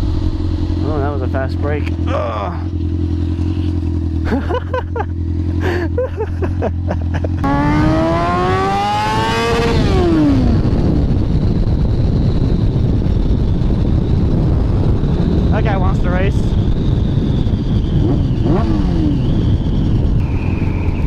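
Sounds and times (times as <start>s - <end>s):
loud wind rush: 0.0s - 2.1s, 6.7s - 21.0s
motorcycle engine accelerating: 0.0s - 21.0s.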